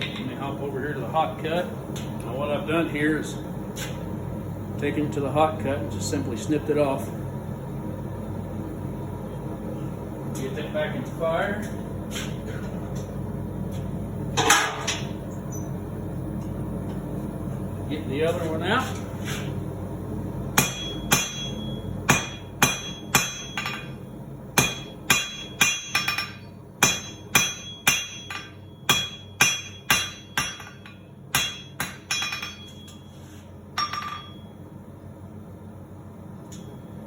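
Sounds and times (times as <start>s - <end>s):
hammer striking steel on anvil: 20.6s - 24.0s, 24.6s - 33.0s, 33.8s - 34.5s.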